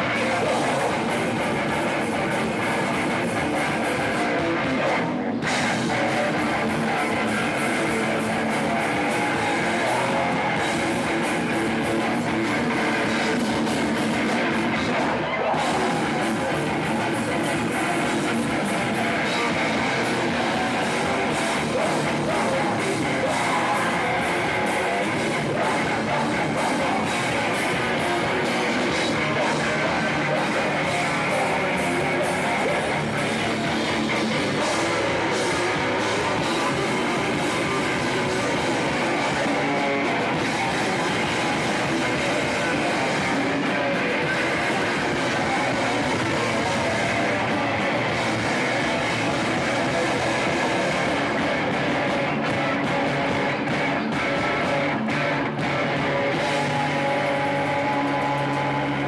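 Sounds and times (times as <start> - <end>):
metal band playing live: 0.0 - 59.0.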